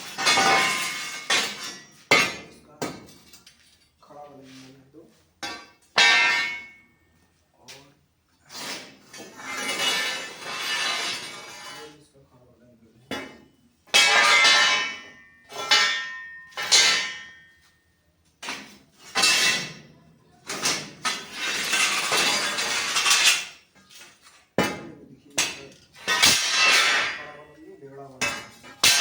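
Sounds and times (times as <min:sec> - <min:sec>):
metal strikes on angle iron: 0:00.0 - 0:03.2, 0:05.4 - 0:06.9, 0:13.1 - 0:17.7, 0:18.4 - 0:19.9, 0:24.6 - 0:27.5, 0:28.2 - 0:29.0
metal scraping: 0:08.4 - 0:12.0, 0:18.5 - 0:24.2, 0:25.4 - 0:29.0.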